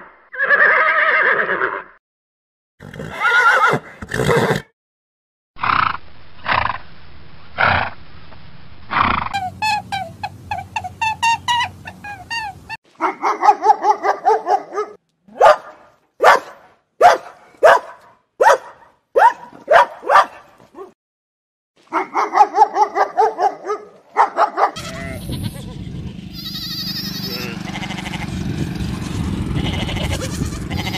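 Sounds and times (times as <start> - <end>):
small dog sharp barks: 13.0 - 20.9, 21.9 - 24.8
small dog yapping: 13.0 - 21.0.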